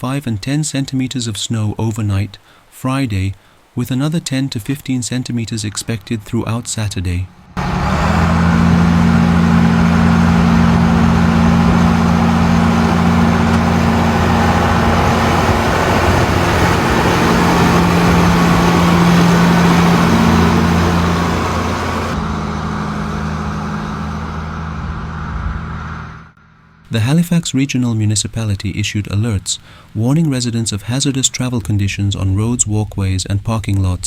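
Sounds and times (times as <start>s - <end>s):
vehicle engine humming: 7.1s - 27.1s
broad rushing noise: 7.3s - 25.7s.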